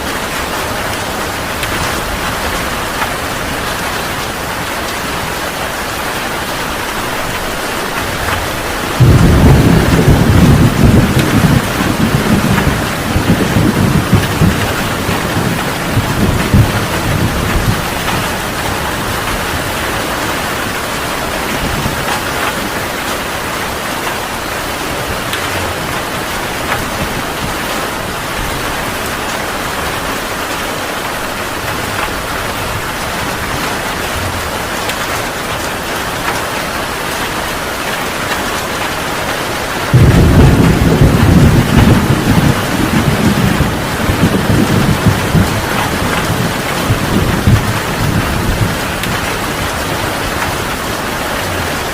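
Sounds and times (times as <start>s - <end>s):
heavy rain falling: 0.0s - 51.9s
thunder rumbling: 6.7s - 23.2s, 39.7s - 51.9s.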